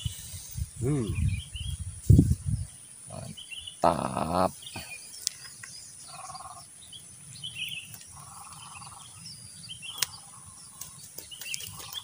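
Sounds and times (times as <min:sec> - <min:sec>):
lower longer bird call: 0:00.0 - 0:01.8
wild birds chirping: 0:00.0 - 0:12.0.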